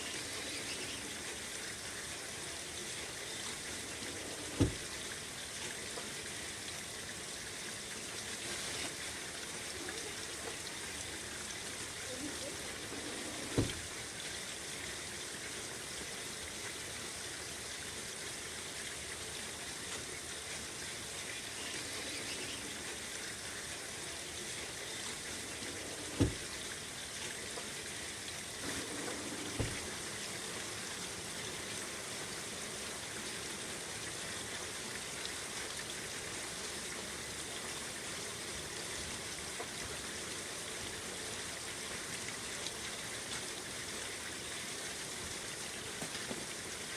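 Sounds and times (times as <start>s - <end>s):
steady rain falling: 0.0s - 46.9s
screen door thumps: 4.5s - 4.9s, 13.4s - 13.9s, 26.1s - 26.5s, 28.7s - 30.0s.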